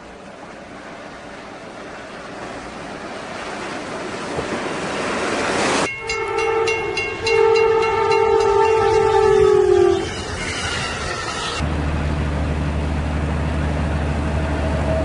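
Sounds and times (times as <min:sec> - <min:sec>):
train ploughing through snow: 0:00.0 - 0:15.0
locomotive horn: 0:05.9 - 0:11.6.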